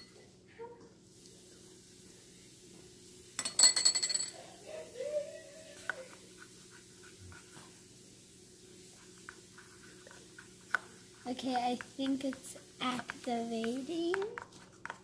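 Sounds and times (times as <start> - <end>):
utensil clinking against bowl: 3.4 - 4.4.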